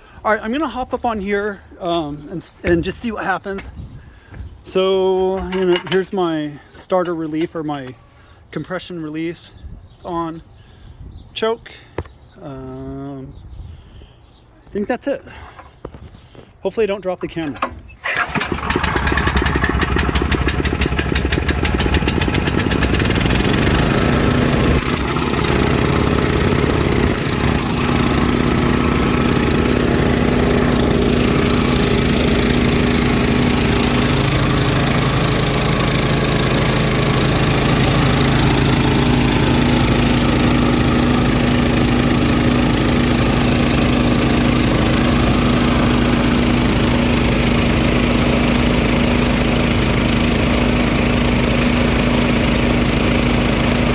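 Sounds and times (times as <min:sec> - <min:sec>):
air compressor gasoline engine running: 0:17.6 - 0:53.9.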